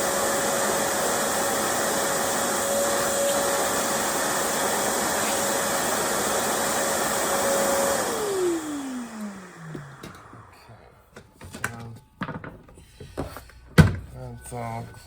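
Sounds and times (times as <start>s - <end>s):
blower motor whining: 0.0s - 10.9s.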